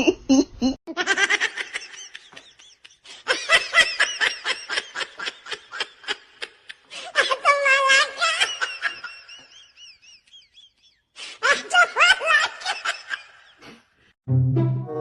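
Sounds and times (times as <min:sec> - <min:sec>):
person laughing hard: 0:00.0 - 0:10.8.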